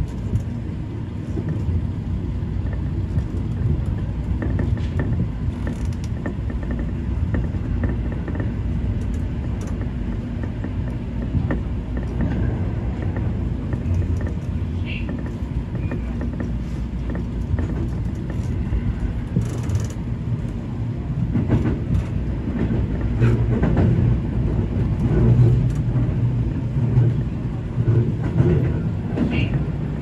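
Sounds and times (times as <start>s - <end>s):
train wheels rumbling on rail: 0.0s - 30.0s
clicks over rail joints: 2.6s - 20.6s.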